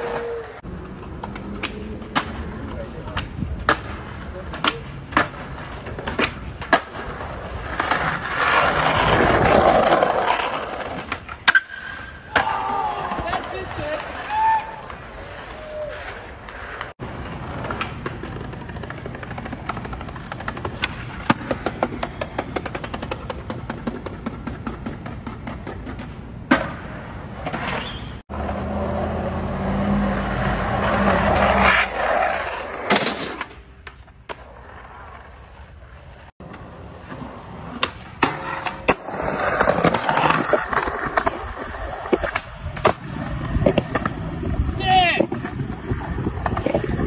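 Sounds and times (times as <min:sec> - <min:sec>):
skateboard pops and landing slaps: 0:00.0 - 0:15.0, 0:15.9 - 0:28.2, 0:32.7 - 0:34.6, 0:36.4 - 0:44.2
skateboard wheels rolling on concrete: 0:00.0 - 0:47.0.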